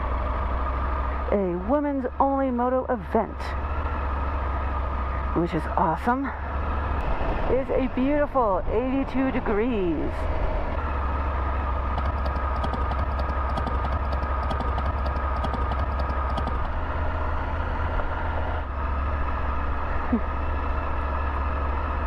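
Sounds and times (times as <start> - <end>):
motorcycle engine running: 10.1 - 22.0.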